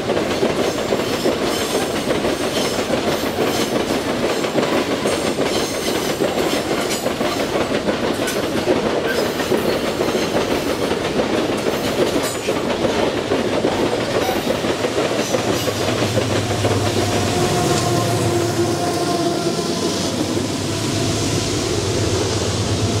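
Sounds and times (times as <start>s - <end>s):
train wheels clattering over rail joints: 0.0s - 18.0s.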